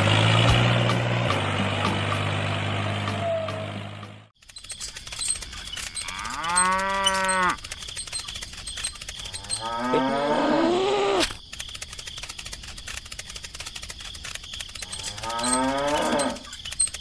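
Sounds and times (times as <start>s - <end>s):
fast steady clicking: 4.4s - 9.9s, 11.2s - 17.0s
cow mooing: 5.9s - 7.6s, 9.3s - 11.2s, 14.9s - 16.5s.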